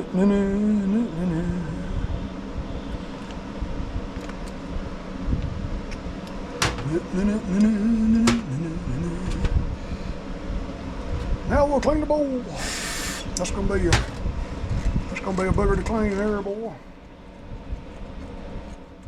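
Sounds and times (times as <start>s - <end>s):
man's voice: 0.0s - 2.0s, 6.6s - 9.6s, 11.5s - 12.7s, 13.3s - 14.2s, 15.1s - 16.8s
steady low rumble: 0.0s - 19.0s.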